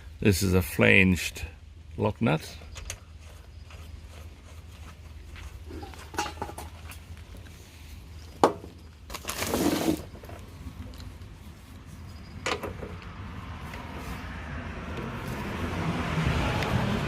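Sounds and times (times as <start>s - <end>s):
short scraping rattle: 9.2s - 10.4s.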